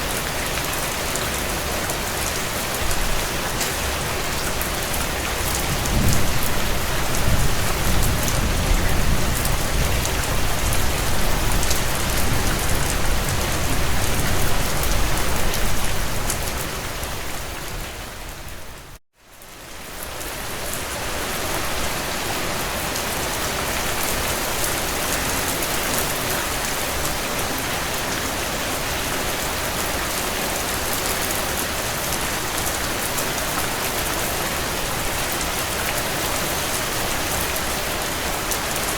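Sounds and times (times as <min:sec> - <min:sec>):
heavy rain on window panes: 0:00.3 - 0:16.6.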